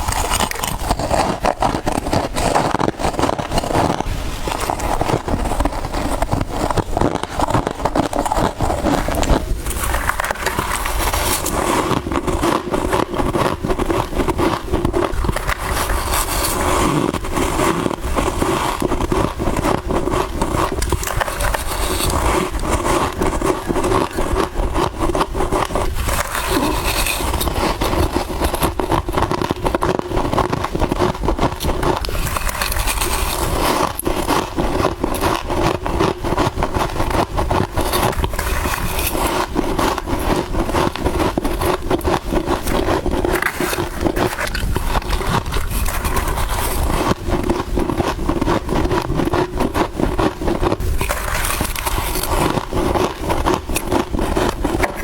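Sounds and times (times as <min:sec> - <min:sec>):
frost being chewed crunching: 0:00.0 - 0:55.0.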